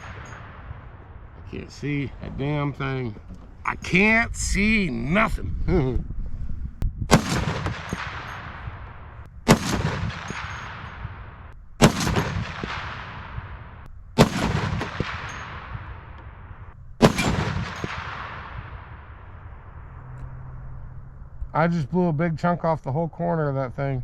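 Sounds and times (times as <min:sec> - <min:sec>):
rifle shots with rolling echo: 0:00.0 - 0:03.6, 0:07.1 - 0:21.3.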